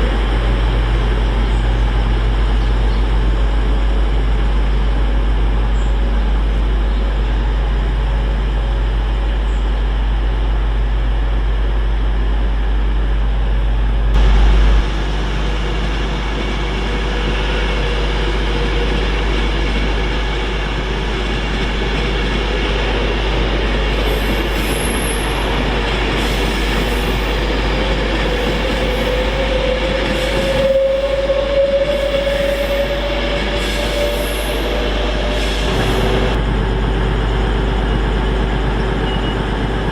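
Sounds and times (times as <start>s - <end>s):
train rumbling past: 0.0s - 39.9s
faint rising whine: 14.0s - 15.7s.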